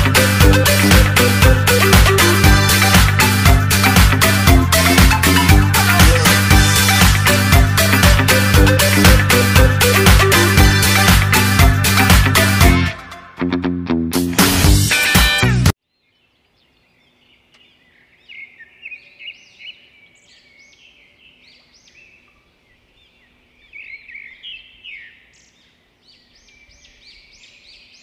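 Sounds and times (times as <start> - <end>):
songbirds chirping: 15.8 - 28.0.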